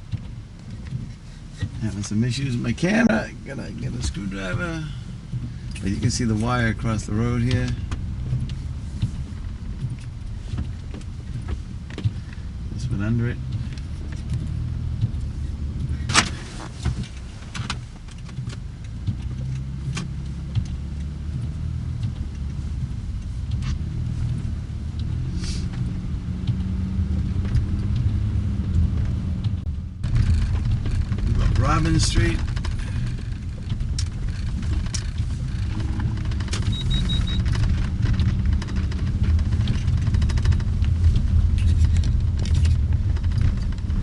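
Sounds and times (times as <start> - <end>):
car engine humming: 0.0 - 44.0
sharp clicks and knocks: 0.0 - 44.0
short high beeps: 36.7 - 37.5.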